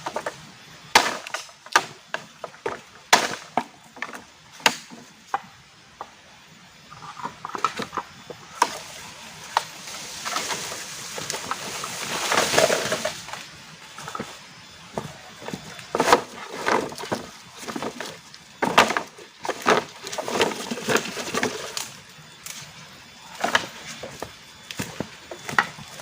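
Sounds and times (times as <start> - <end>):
wood being chopped: 0.9 - 5.0
rustling noise: 9.7 - 21.9.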